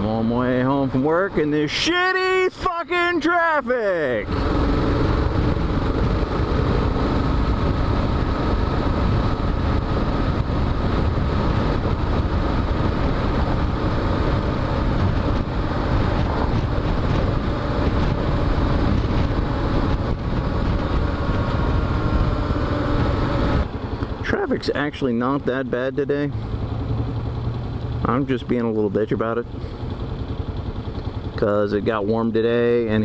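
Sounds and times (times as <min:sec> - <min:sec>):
motorcycle engine running: 0:03.9 - 0:33.0
wind rushing over microphone: 0:04.2 - 0:24.2.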